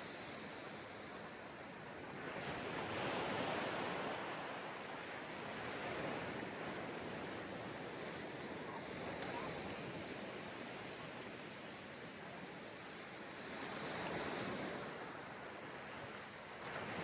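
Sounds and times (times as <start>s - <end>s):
sea waves breaking on a beach: 0.0s - 17.0s.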